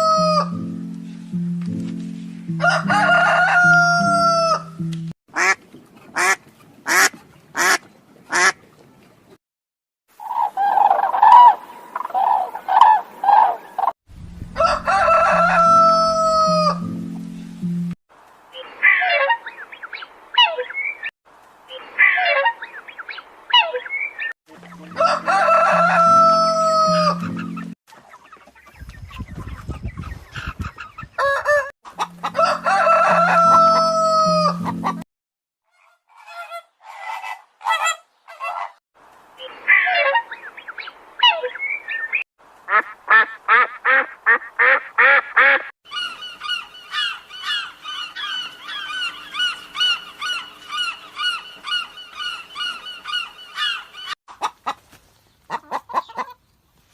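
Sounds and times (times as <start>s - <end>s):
rooster crowing: 0.0s - 0.6s, 2.6s - 4.8s, 14.5s - 16.9s, 24.9s - 27.3s, 31.2s - 34.7s
chickens clucking: 10.2s - 13.9s, 21.7s - 35.0s, 35.7s - 38.8s, 39.4s - 56.6s
geese honking: 14.6s - 17.0s, 24.5s - 27.7s, 31.2s - 35.0s, 42.7s - 54.1s.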